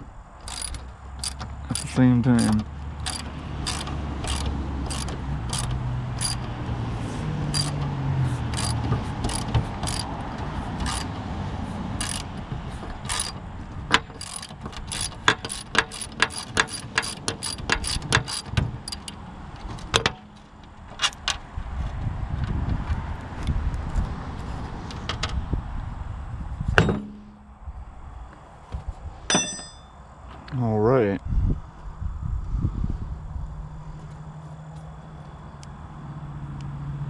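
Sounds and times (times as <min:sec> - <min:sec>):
ratchet wrench clicking: 0:00.4 - 0:06.6, 0:07.5 - 0:11.2, 0:12.0 - 0:19.2.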